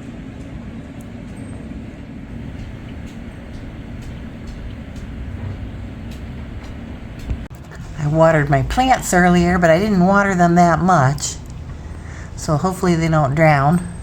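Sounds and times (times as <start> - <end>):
heavy rain pouring: 2.3 - 14.0
rain drop ticks: 2.3 - 14.0.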